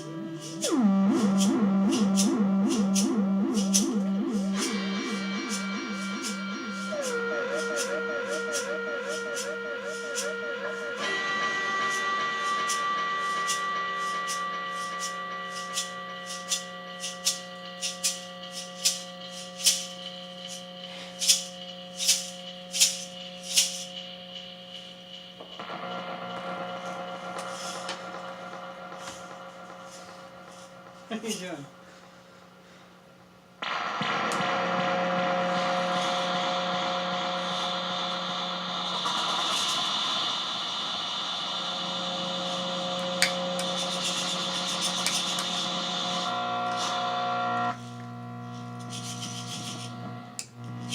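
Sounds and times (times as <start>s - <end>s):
sustained drone of held tones: 0.0s - 32.5s, 33.6s - 50.9s
low hum: 0.0s - 32.6s, 33.6s - 50.9s
hissy shaker-like rattling hits: 26.0s - 31.6s, 35.5s - 46.9s.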